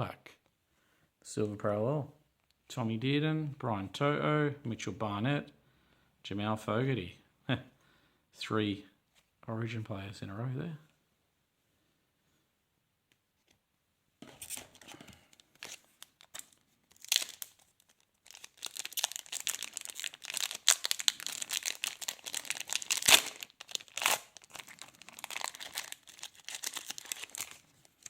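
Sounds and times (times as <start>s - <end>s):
wrapper crinkling: 14.4s - 28.0s
sharp wrapper rip: 15.6s - 27.6s.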